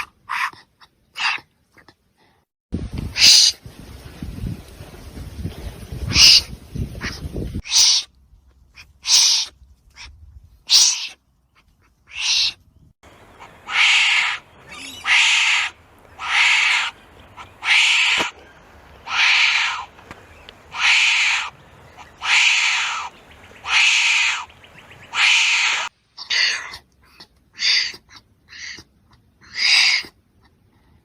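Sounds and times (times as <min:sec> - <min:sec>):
wombat raspy hissing calls: 0:03.2 - 0:03.5, 0:06.1 - 0:06.4, 0:07.6 - 0:08.1, 0:08.8 - 0:10.1, 0:10.7 - 0:11.2, 0:12.1 - 0:12.6, 0:13.3 - 0:18.4, 0:19.0 - 0:19.9, 0:20.7 - 0:24.5, 0:25.1 - 0:26.8, 0:27.5 - 0:30.2.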